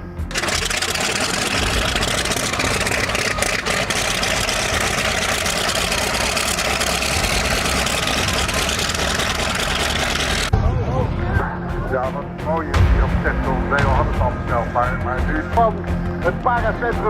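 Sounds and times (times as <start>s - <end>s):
aircraft engine drone: 0.0s - 10.7s.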